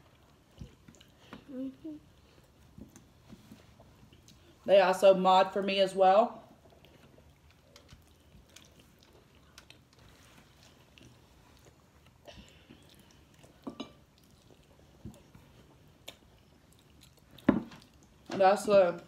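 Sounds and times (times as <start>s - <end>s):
chewing chicken wings: 6.6s - 18.3s.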